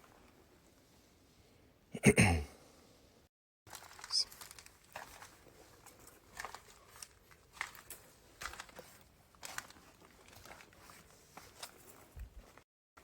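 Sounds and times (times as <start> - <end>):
crunching of dry grit: 3.7 - 12.6.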